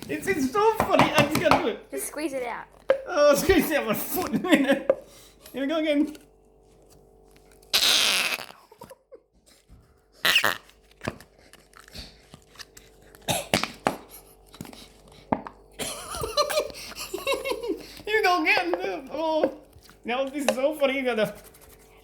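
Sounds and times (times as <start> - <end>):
fart-like air squeezing: 7.7 - 8.8, 10.2 - 10.8.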